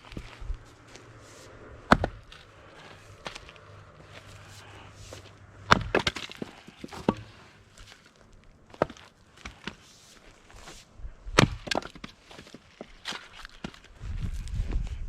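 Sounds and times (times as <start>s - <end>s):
axe chopping wood: 1.9s - 2.5s, 5.1s - 7.4s, 8.7s - 9.8s, 11.3s - 13.8s
wood cracking and falling: 5.7s - 9.8s, 11.4s - 13.9s.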